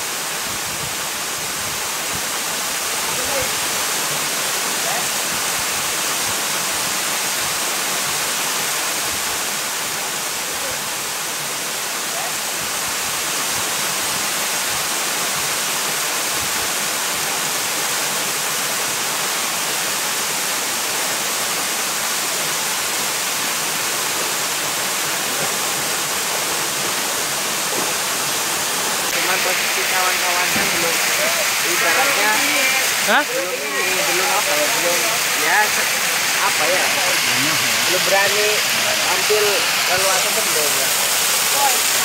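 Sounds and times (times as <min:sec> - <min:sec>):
waterfall rushing into pool: 0:00.0 - 0:42.0.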